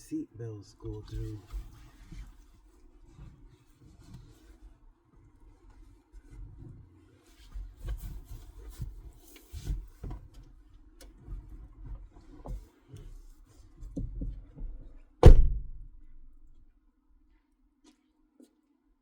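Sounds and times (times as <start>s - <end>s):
fabric rustling and rubbing: 1.3s - 9.9s
loud thump: 15.2s - 15.9s.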